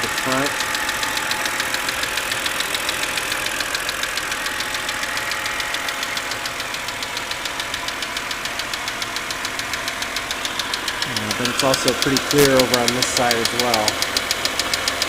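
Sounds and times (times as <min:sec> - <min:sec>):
engine ticking: 0:00.0 - 0:15.0.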